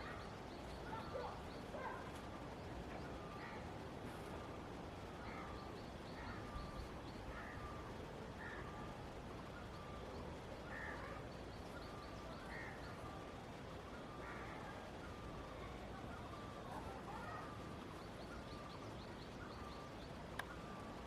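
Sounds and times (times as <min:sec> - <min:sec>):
faint background hiss: 0:00.0 - 0:21.0
crow cawing: 0:10.7 - 0:11.1, 0:12.5 - 0:12.8.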